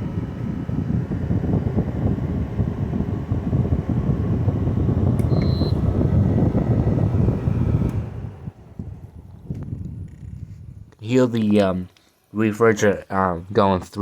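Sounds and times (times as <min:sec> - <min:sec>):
air conditioner fan blowing: 0:00.0 - 0:14.0
switch click: 0:05.2 - 0:05.7
short electronic beep: 0:05.3 - 0:05.8.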